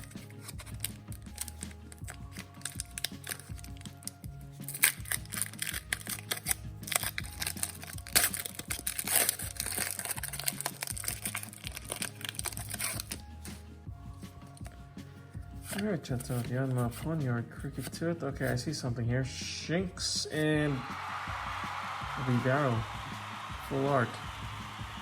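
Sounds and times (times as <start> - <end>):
foil wrapper crinkling and tearing: 0.0 - 13.6, 15.6 - 16.8.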